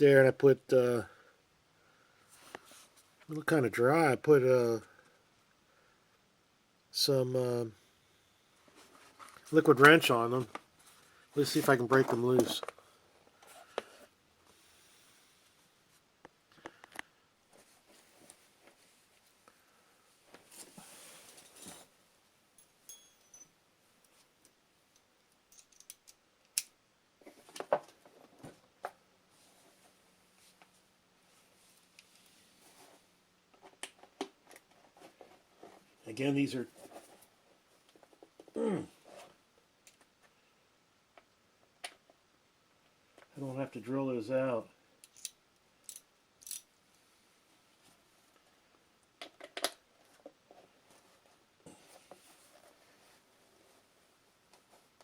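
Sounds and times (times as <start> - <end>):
hand tool metallic clicks: 45.0 - 46.7.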